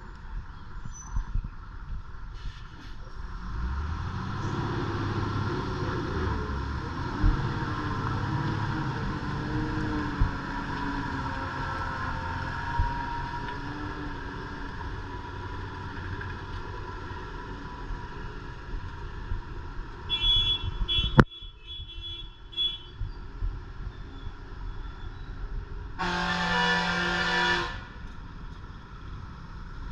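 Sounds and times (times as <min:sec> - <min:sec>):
truck engine droning: 0:03.3 - 0:20.0
high horn toots: 0:20.1 - 0:23.0, 0:26.0 - 0:28.0.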